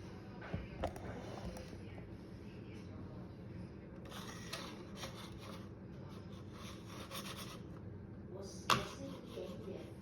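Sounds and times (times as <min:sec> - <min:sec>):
scratching on hard surface: 0:04.0 - 0:07.8, 0:08.7 - 0:10.0.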